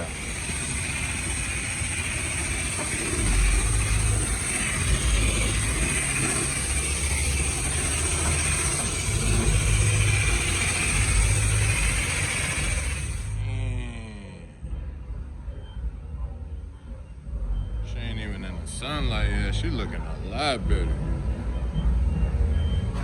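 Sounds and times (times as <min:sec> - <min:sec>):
pressure washer spraying water: 0:00.0 - 0:13.4.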